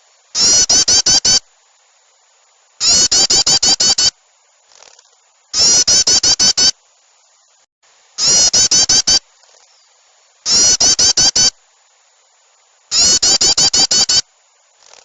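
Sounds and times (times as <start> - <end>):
harsh rapid bird calls: 0.3 - 1.4, 2.8 - 4.2, 4.8 - 6.8, 8.2 - 11.6, 12.9 - 15.0
faint bird chirps: 0.3 - 1.5, 2.8 - 4.2, 4.8 - 6.8, 8.2 - 11.6, 12.2 - 15.0.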